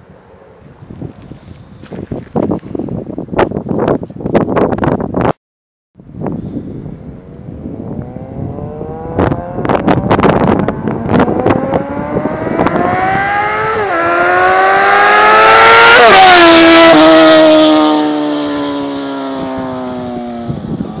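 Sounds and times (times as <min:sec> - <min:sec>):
motorcycle engine revving: 0:07.3 - 0:21.0.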